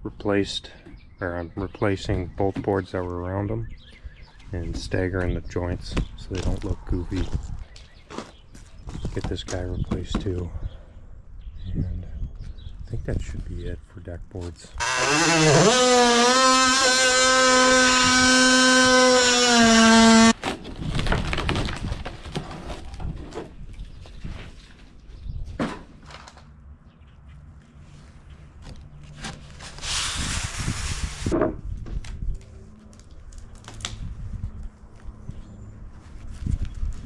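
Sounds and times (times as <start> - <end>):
power tool motor whine: 14.8 - 20.4.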